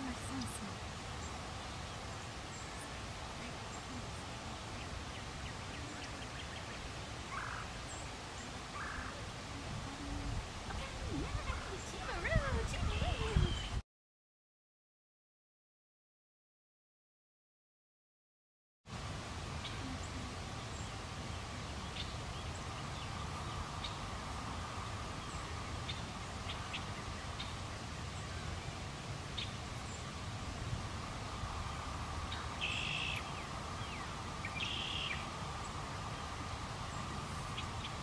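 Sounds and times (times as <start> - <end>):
birds chirping: 0.0 - 13.8, 19.5 - 30.3, 31.1 - 38.0
loud brief bird calls: 32.3 - 35.2.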